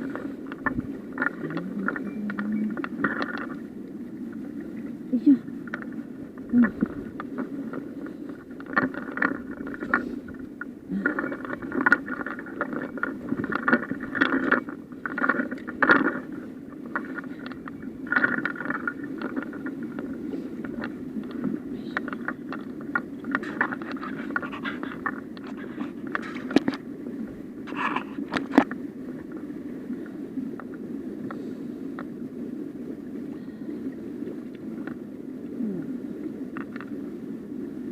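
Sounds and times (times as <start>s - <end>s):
mountain stream running: 0.0s - 10.3s
handling scrapes and clicks: 11.0s - 26.8s.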